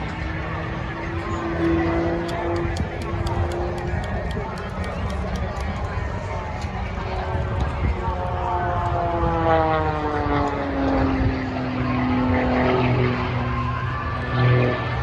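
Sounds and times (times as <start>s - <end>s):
propeller plane engine drone: 0.0s - 15.0s.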